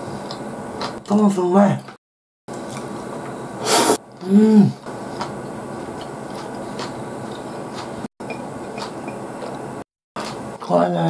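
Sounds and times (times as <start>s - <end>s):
person humming mm: 3.6s - 4.8s.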